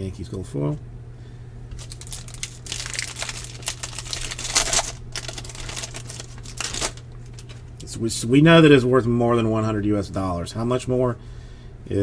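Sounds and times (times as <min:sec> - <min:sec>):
foil wrappers crinkling and tearing: 0:01.7 - 0:07.8.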